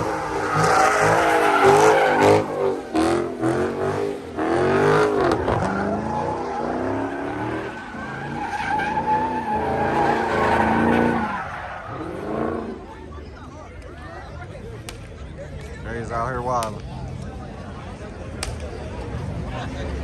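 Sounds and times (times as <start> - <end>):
car engine revving: 0.0 - 12.9
tires screeching: 0.0 - 13.2.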